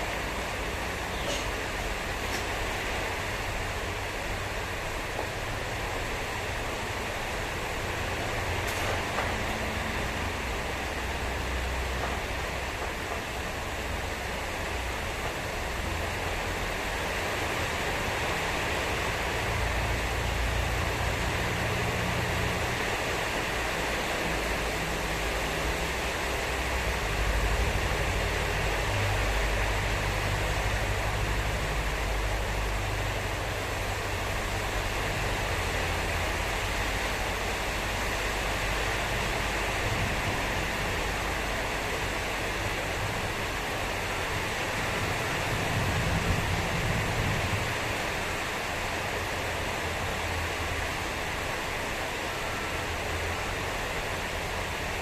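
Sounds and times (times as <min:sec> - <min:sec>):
heavy rain pouring: 0:00.0 - 0:55.0
wind rumbling on microphone: 0:44.7 - 0:48.2.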